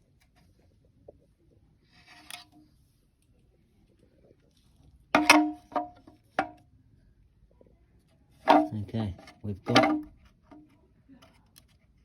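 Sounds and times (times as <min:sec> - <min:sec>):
metal parts knocking together: 0:09.7 - 0:10.1.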